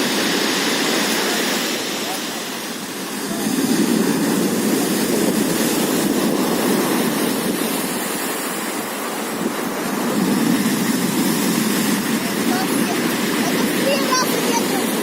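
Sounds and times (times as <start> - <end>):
surf rushing on shore: 0.0 - 15.0.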